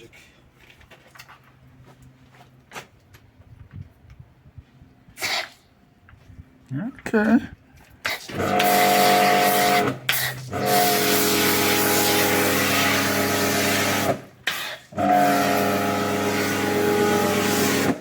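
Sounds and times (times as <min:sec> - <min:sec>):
pressure washer running and spraying: 0:08.1 - 0:18.0.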